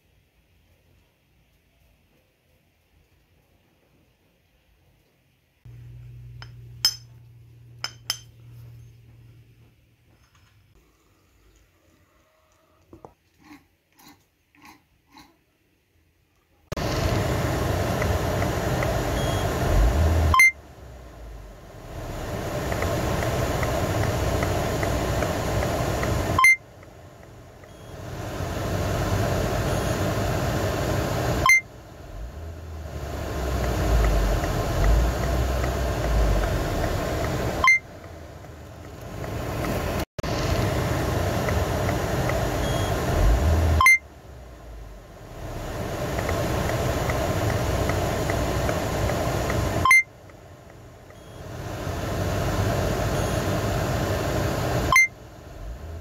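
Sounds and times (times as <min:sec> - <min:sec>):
car engine running: 0:16.7 - 0:56.0
short sharp beep: 0:20.3 - 0:20.6, 0:26.4 - 0:26.6, 0:37.6 - 0:37.8, 0:43.8 - 0:44.0, 0:49.8 - 0:50.1, 0:54.9 - 0:55.1.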